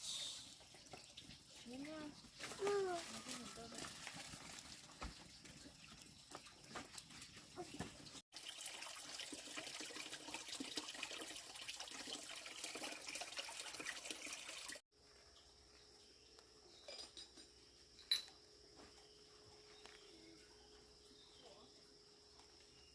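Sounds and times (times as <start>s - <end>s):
water running and splattering: 0.0s - 14.8s.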